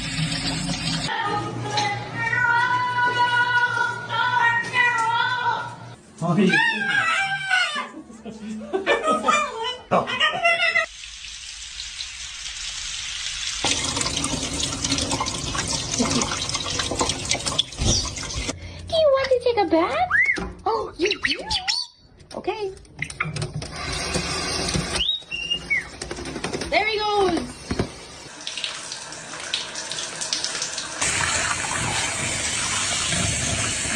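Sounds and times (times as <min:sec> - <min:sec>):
water running from a tap: 0:00.0 - 0:01.1, 0:10.9 - 0:18.6, 0:27.0 - 0:33.9.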